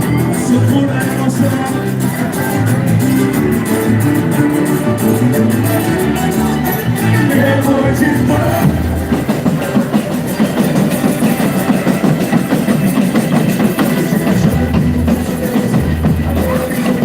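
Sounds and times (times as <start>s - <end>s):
live drums and percussion music: 0.0s - 17.0s.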